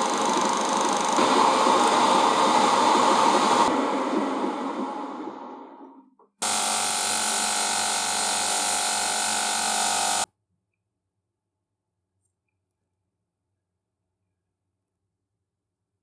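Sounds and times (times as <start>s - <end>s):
power tool motor buzzing: 0.0s - 2.0s, 6.4s - 10.3s.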